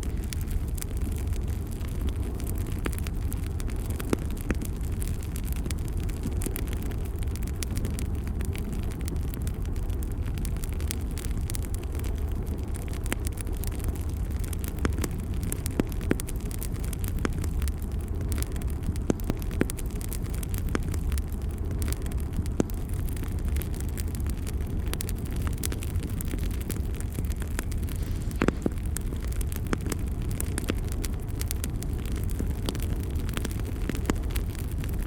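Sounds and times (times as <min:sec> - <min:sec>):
bonfire crackling: 0:00.0 - 0:35.0.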